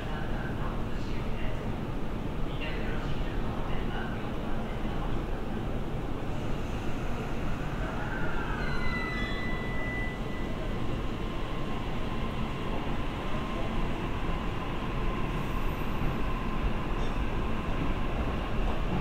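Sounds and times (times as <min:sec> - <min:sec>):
electric trains rumbling: 0:04.9 - 0:19.0
electric train approaching: 0:06.3 - 0:19.0.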